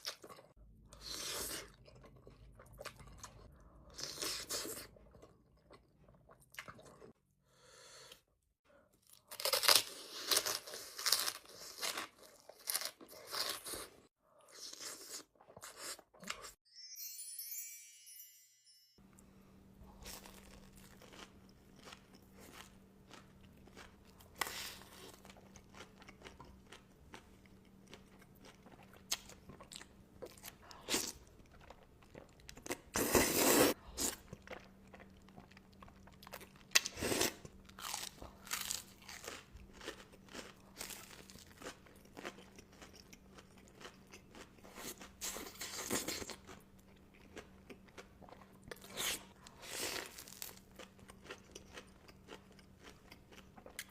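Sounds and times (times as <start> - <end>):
crunching bites and chewing: 9.0 - 16.5, 19.9 - 53.9.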